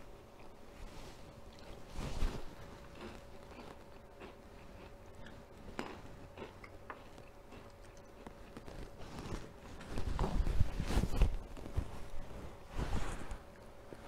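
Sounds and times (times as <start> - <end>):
faint steady hum: 0.0 - 14.0
chewing with mouth closed: 2.6 - 9.0.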